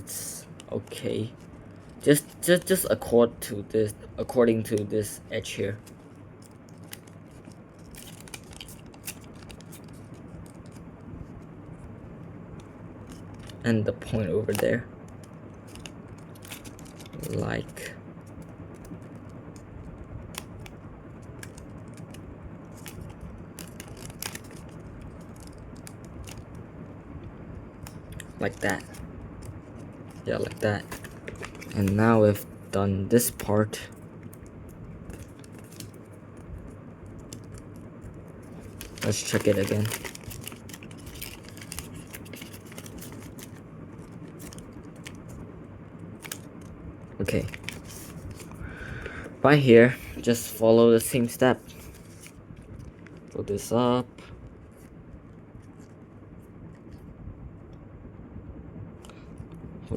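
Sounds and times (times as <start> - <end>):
faint low hum: 0.0 - 59.9
steady low hiss: 0.0 - 59.9
paper being folded: 4.6 - 11.9, 13.0 - 26.6, 27.8 - 32.5, 33.1 - 45.4, 46.1 - 48.6, 50.2 - 56.0.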